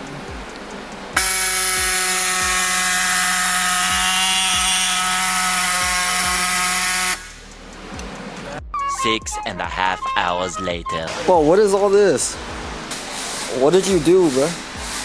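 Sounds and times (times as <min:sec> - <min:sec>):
power tool cutting metal: 0:01.2 - 0:07.3, 0:12.9 - 0:15.0
hiss: 0:12.9 - 0:15.0.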